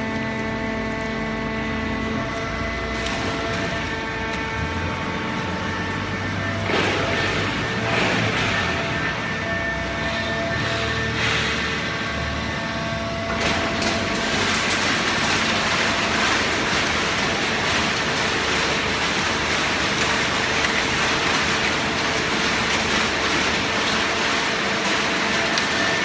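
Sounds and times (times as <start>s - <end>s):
baler machine running: 0.0s - 26.0s.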